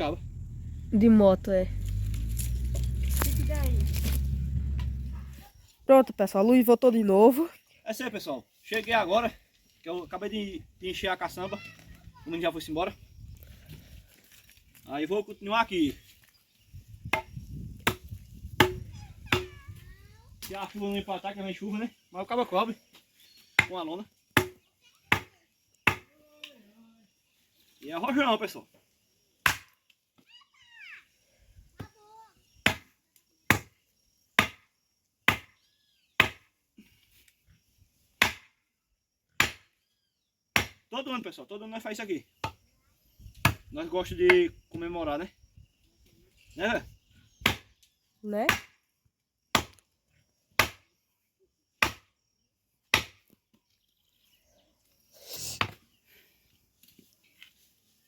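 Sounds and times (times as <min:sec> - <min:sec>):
firewood chopping blows: 0:17.1 - 0:19.6, 0:29.4 - 0:29.7, 0:38.2 - 0:38.5, 0:39.4 - 0:39.7, 0:40.6 - 0:40.8
firewood chopping strikes: 0:17.1 - 0:19.6, 0:24.4 - 0:25.3, 0:25.9 - 0:26.1, 0:29.4 - 0:29.7, 0:32.6 - 0:32.9, 0:33.5 - 0:33.7, 0:34.4 - 0:34.6, 0:35.3 - 0:35.6, 0:36.2 - 0:36.5, 0:38.2 - 0:38.5, 0:39.4 - 0:39.7, 0:40.6 - 0:40.8, 0:47.4 - 0:47.6, 0:49.5 - 0:49.8, 0:50.6 - 0:50.8, 0:51.8 - 0:52.1, 0:52.9 - 0:53.2
knock of wood: 0:18.6 - 0:19.5.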